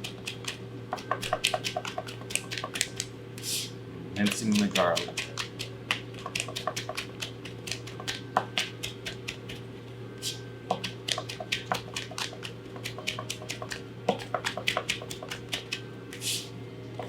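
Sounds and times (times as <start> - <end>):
knife chopping on cutting board: 4.5 - 9.4, 10.7 - 15.5.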